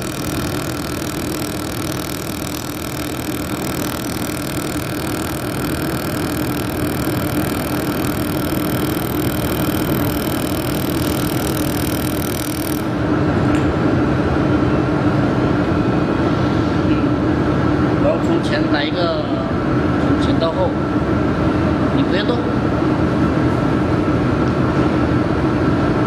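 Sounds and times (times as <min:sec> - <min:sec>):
welding machine hum: 0:00.0 - 0:14.0.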